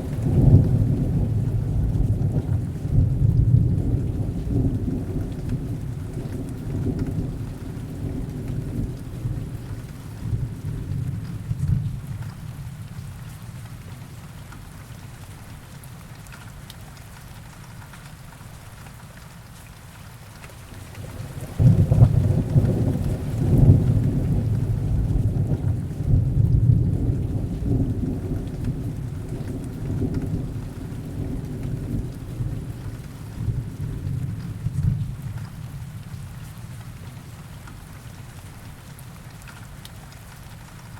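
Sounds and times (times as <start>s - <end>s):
thunder rumbling: 0.0s - 12.6s, 21.0s - 36.2s
heavy rain: 0.0s - 40.9s.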